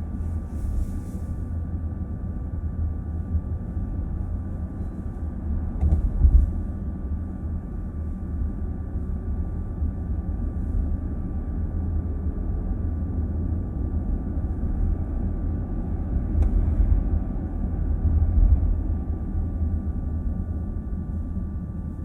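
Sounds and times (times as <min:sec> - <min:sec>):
road and tyre noise in car: 0:00.0 - 0:22.0
brief thump: 0:05.8 - 0:06.5.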